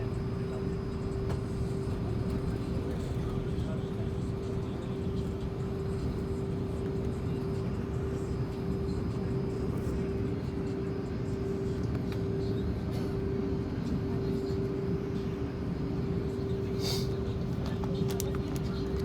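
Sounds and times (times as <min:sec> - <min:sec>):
constant hum: 0:00.0 - 0:19.0
aircraft cabin air rush: 0:09.5 - 0:19.0.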